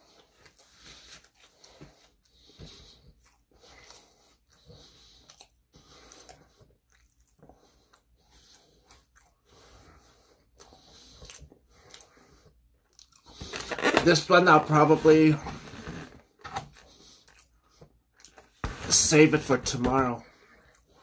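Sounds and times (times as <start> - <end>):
person chewing wetly: 0.1 - 13.8, 16.3 - 18.6, 20.4 - 21.0.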